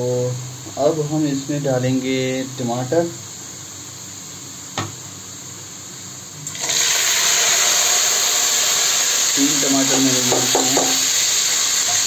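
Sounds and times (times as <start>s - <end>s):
tomatoes sizzling in hot oil: 5.9s - 12.0s.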